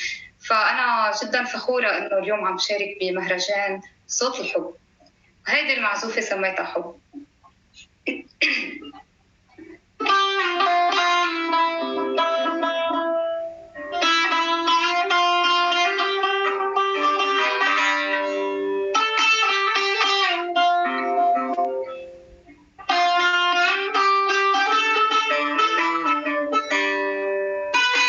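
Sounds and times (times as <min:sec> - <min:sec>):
plucked lute melody: 0:09.6 - 0:28.0.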